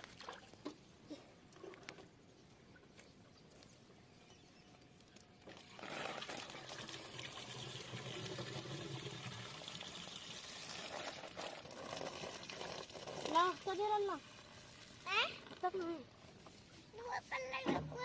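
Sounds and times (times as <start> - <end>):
water pouring: 5.4 - 15.8.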